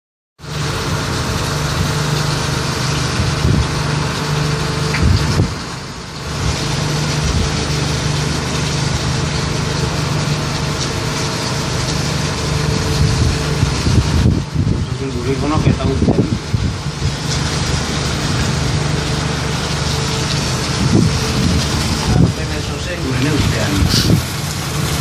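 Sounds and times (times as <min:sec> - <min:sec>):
vessel engine humming: 0:00.4 - 0:25.0
wind noise on microphone: 0:03.0 - 0:04.1, 0:04.7 - 0:07.8, 0:12.5 - 0:18.9, 0:20.5 - 0:25.0.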